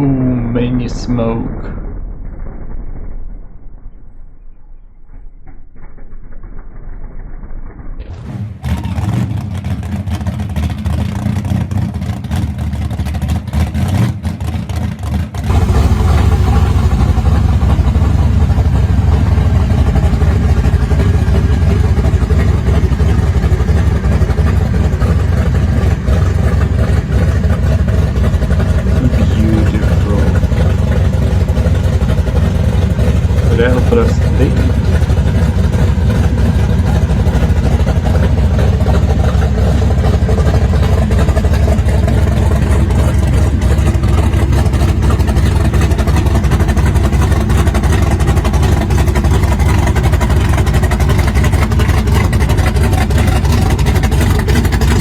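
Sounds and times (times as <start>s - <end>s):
car engine rumbling: 0.0s - 55.0s.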